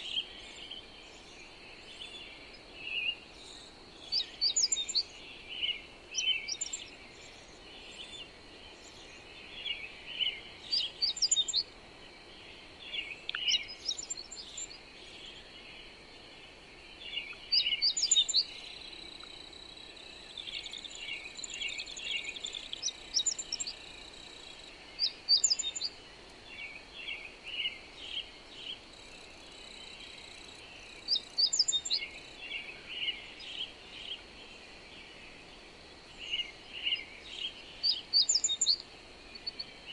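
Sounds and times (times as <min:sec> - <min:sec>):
faint steady hiss: 0:00.0 - 0:39.9
songbirds chirping and singing: 0:00.0 - 0:39.9.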